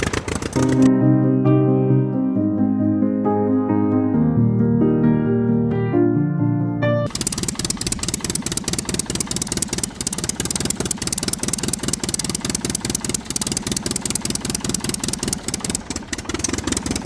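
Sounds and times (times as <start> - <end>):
motor with knocking rattle: 0.0 - 0.9, 7.1 - 17.0.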